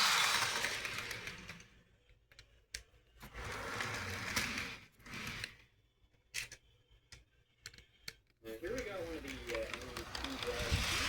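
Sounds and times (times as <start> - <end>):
model train motor whirring: 0.0 - 1.8, 9.3 - 11.0.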